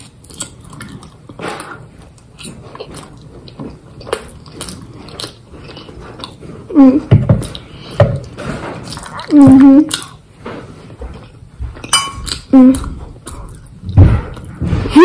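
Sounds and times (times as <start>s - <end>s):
chewing and biting pasta: 0.0s - 6.8s.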